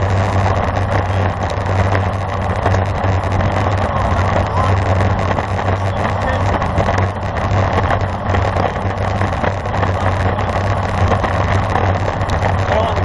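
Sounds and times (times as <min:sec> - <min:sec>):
low rumble: 0:00.0 - 0:13.0
wind rush on microphone: 0:00.0 - 0:13.0.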